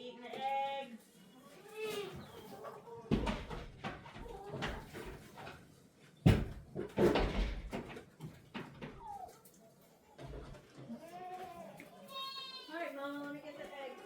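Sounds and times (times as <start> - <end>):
hens clucking: 1.3 - 5.6
knocks and thumps: 3.1 - 5.6, 6.2 - 9.1.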